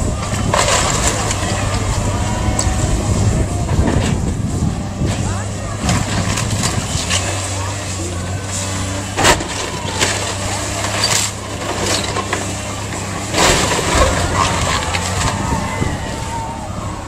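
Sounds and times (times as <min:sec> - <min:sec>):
heavy machine engine running: 0:00.0 - 0:17.0
cracks and crashes of breaking material: 0:00.3 - 0:01.5, 0:09.0 - 0:15.5.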